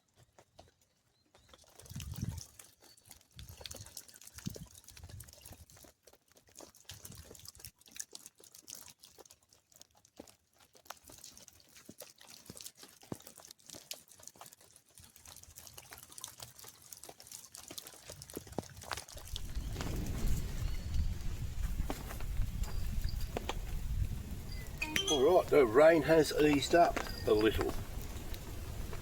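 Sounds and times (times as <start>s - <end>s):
raindrops clicking: 17.7s - 29.0s
rain hiss: 19.2s - 29.0s.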